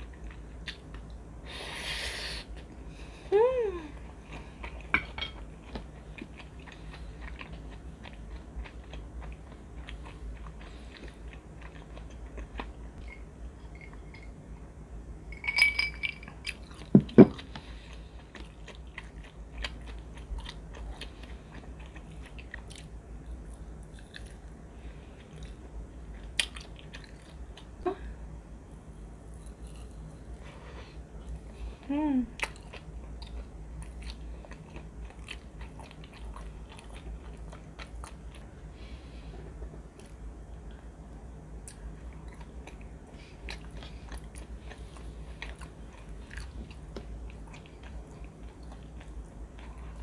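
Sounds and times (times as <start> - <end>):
chewing and biting food: 4.1 - 13.1, 32.4 - 38.5, 41.7 - 50.0.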